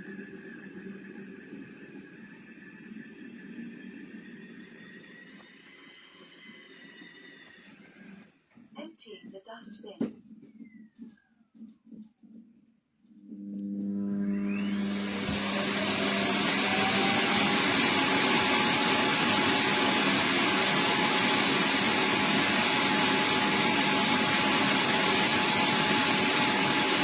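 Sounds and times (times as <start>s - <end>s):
suction motor rushing air: 14.0s - 27.0s.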